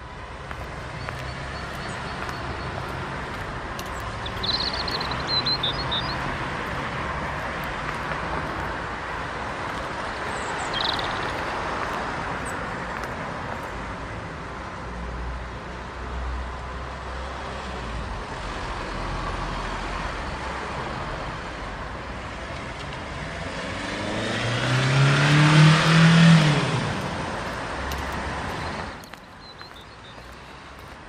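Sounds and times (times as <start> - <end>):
distant traffic: 0.0 - 31.0
bird chirping: 0.9 - 2.9, 3.8 - 6.3, 10.2 - 11.5, 28.5 - 30.9.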